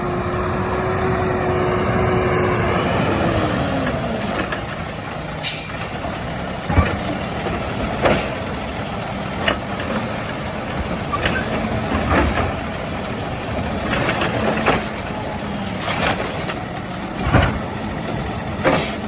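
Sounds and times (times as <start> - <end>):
garbage truck whine: 0.0 - 19.0
clanks and knocks: 9.4 - 12.7, 13.8 - 17.7.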